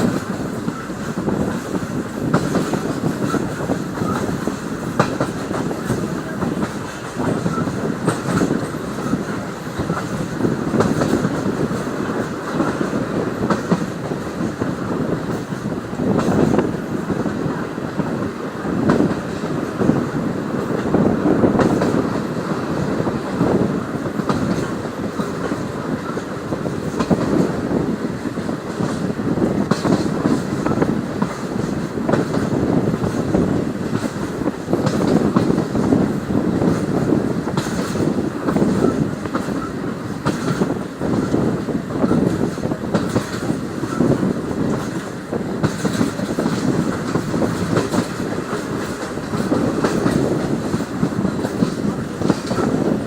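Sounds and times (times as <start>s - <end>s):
train rumbling and rattling: 0.0s - 53.0s
wheels clicking over rail joints: 18.8s - 53.0s.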